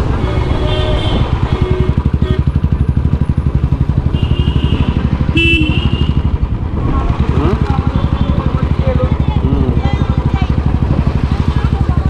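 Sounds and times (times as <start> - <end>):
horn honking: 0.0 - 3.2, 4.0 - 6.4
motorcycle engine running: 0.0 - 12.0.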